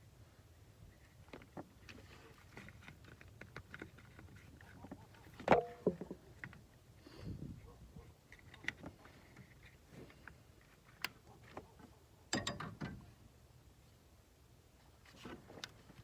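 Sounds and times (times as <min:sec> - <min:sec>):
hand tools clicking and knocking: 0:12.3 - 0:12.9.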